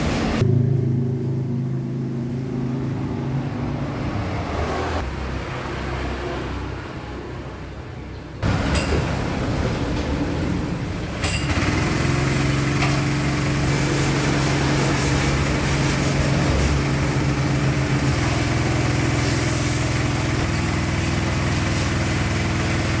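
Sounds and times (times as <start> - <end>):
car engine running: 11.4 - 23.0.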